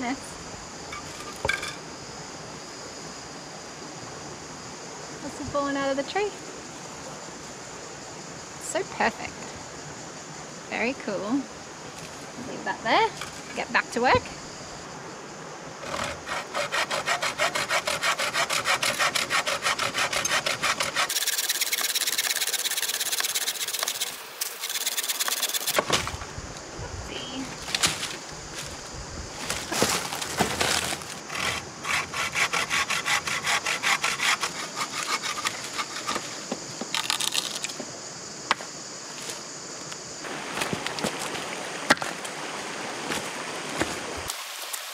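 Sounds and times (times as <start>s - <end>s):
hand saw cutting wood: 15.8s - 25.8s, 31.3s - 36.4s.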